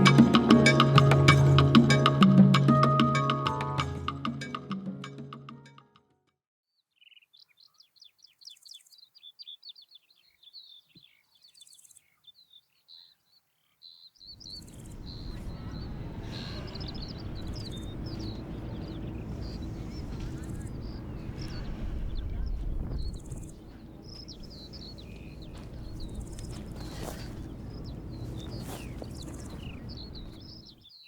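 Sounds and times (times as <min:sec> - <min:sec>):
music: 0:00.0 - 0:06.2
small birds chirping: 0:06.8 - 0:31.0
steady rushing noise: 0:14.5 - 0:30.8.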